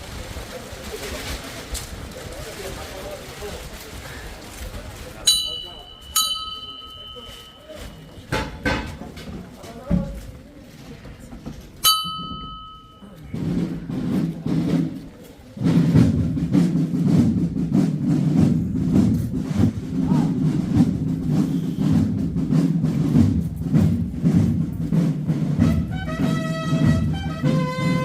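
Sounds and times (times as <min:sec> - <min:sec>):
drums beating heavily: 0:05.0 - 0:10.4, 0:11.1 - 0:28.0
brass instruments holding notes: 0:25.6 - 0:28.0.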